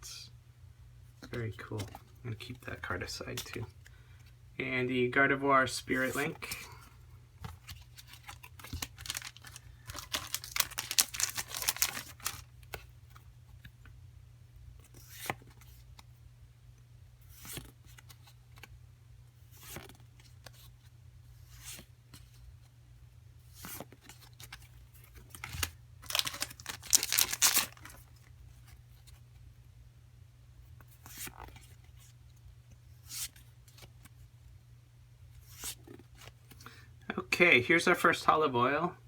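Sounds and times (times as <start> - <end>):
cards clicking and rustling: 7.4 - 12.9, 23.6 - 28.1
foil wrapper tearing and crinkling: 8.1 - 12.5, 25.3 - 28.1.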